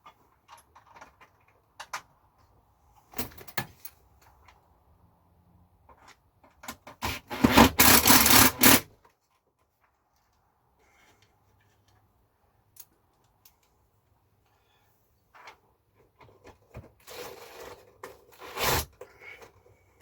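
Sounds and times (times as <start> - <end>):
sharp clicks of parts: 5.9 - 9.2
rubbing and scraping: 17.0 - 19.4.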